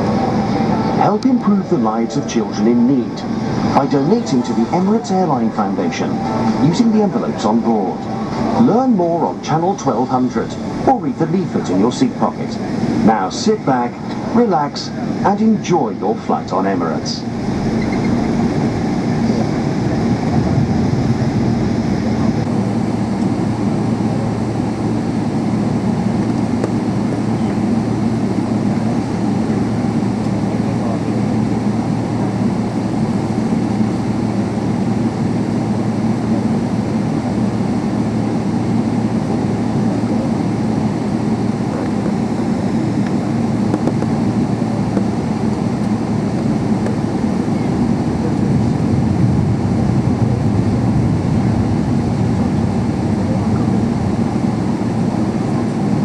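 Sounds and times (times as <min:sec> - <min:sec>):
air noise: 0:00.0 - 0:56.0
jet engine rumble in cabin: 0:00.0 - 0:56.0.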